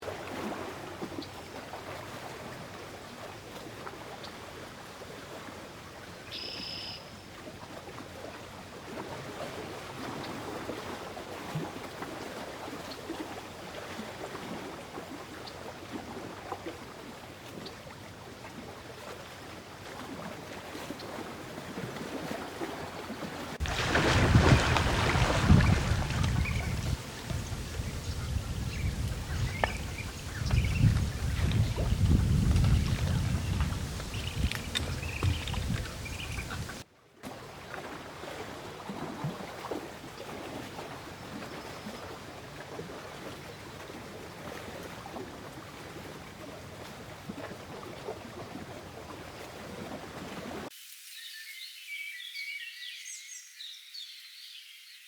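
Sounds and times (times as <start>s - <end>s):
flowing water rushing: 7.4s - 51.0s.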